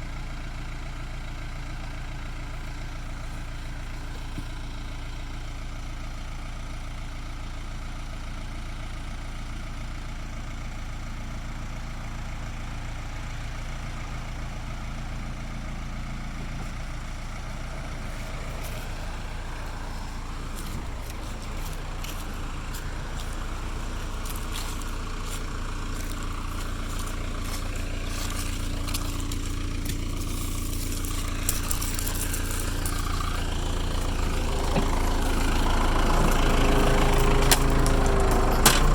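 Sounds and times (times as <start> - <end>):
backhoe engine running: 0.0 - 38.9
sharp clicks and cracks: 28.9 - 33.1.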